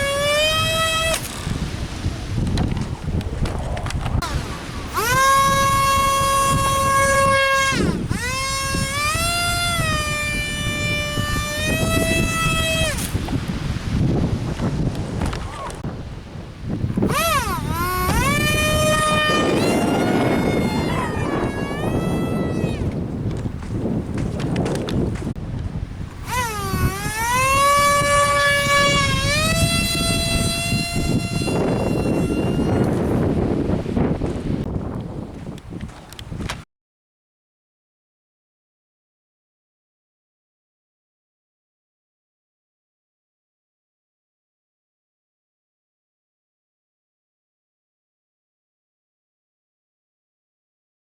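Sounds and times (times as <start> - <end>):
electric ducted fan whine: 0.0 - 15.8, 16.4 - 34.7
wind on microphone: 0.0 - 36.7.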